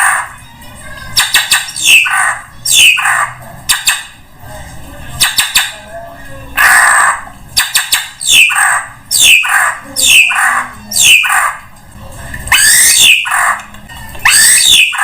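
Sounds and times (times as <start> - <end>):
bird rasping calls: 1.2 - 4.0, 6.6 - 11.7, 12.5 - 15.0.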